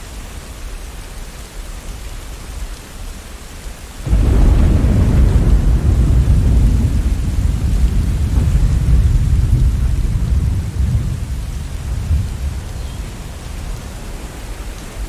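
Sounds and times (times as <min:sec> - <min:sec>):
heavy rain: 0:00.0 - 0:15.0
deep thunder rumbling: 0:04.0 - 0:15.0.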